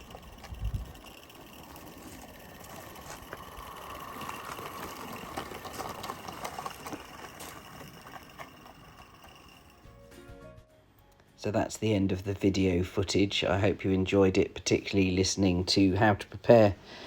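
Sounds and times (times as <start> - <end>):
light clicks of locomotive: 0.0 - 9.9
model steam locomotive hissing: 0.0 - 10.0.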